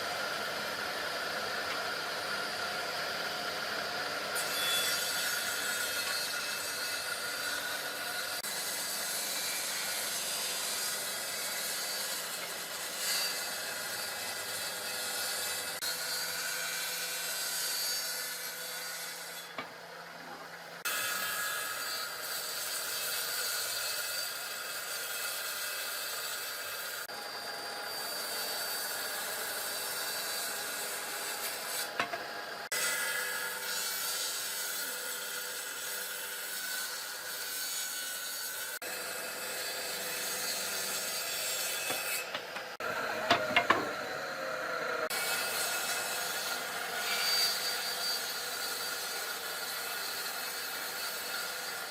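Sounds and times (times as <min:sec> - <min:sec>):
power tool grinding wood: 0:38.6 - 0:46.9.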